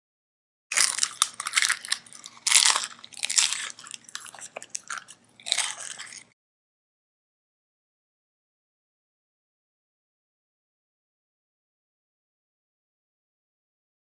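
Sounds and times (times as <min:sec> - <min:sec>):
person crunching and chewing: 0:00.7 - 0:06.4.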